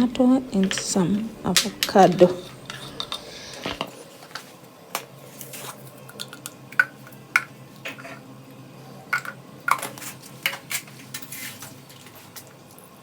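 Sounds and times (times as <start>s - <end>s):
utensils and dishes clinking: 0.0s - 4.5s, 9.0s - 12.5s.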